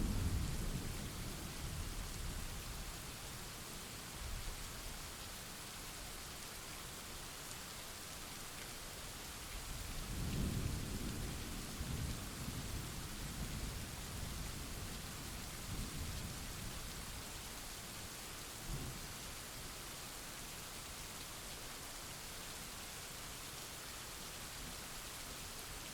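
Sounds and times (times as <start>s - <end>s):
thunder rumbling: 0.0s - 1.3s.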